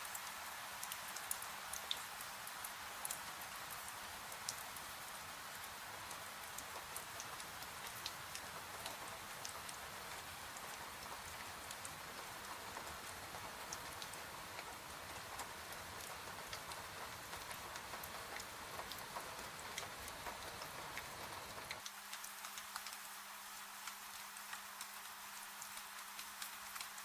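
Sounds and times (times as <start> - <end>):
rain hiss: 0.0 - 27.0
faint steady hum: 7.4 - 21.8.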